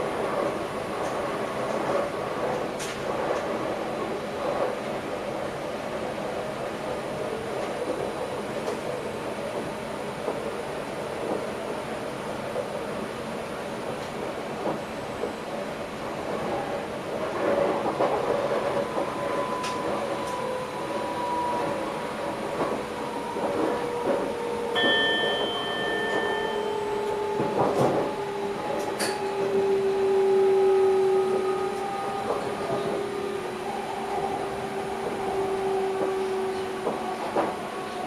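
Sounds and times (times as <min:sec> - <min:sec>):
train drive whine: 0:13.9 - 0:38.0
train rail rumble: 0:16.0 - 0:38.0.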